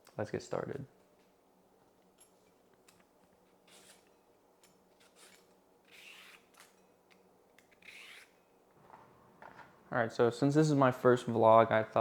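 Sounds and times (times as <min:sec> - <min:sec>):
scraping and rustling strokes: 0:03.6 - 0:04.2, 0:04.9 - 0:06.9.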